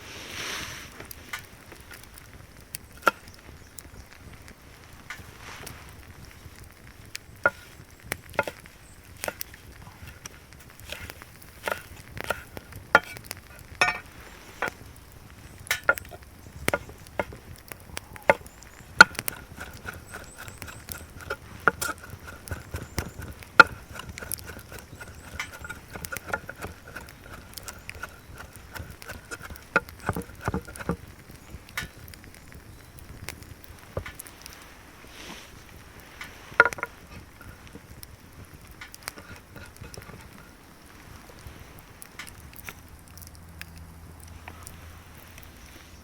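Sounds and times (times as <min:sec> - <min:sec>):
utensils knocking on pan: 0:13.8 - 0:14.0.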